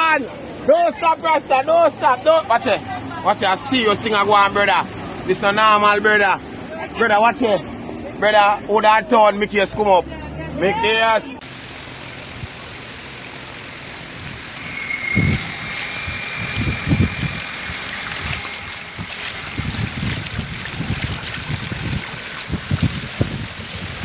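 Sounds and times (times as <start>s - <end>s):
floodwater rushing and splashing: 11.4s - 24.0s
wind buffeting microphone: 14.1s - 24.0s.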